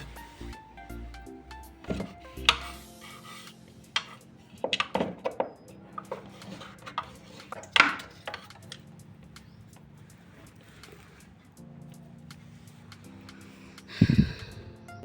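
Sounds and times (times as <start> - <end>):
household items knocking: 1.8 - 2.8, 4.0 - 8.7.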